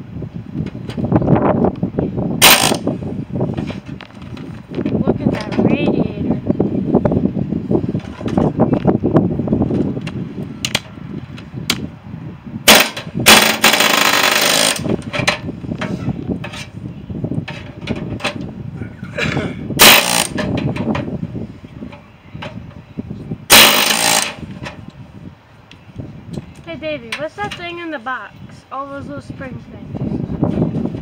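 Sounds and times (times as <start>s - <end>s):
power tool bursts: 2.4s - 2.9s, 12.7s - 14.9s, 19.8s - 20.4s, 23.5s - 24.5s
metal clanks and knocks: 12.7s - 16.7s, 17.4s - 18.5s, 19.8s - 21.1s.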